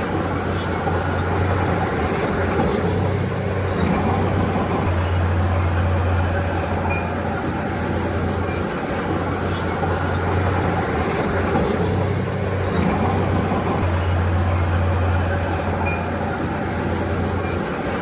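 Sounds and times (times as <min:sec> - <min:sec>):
bulldozer diesel engine drone: 0:00.0 - 0:18.0.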